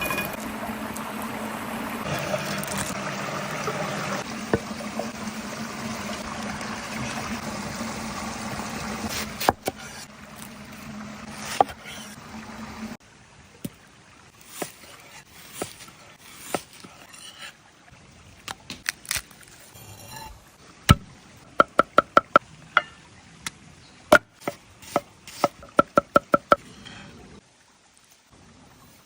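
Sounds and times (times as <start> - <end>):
knife chopping on wooden board: 24.1 - 26.6.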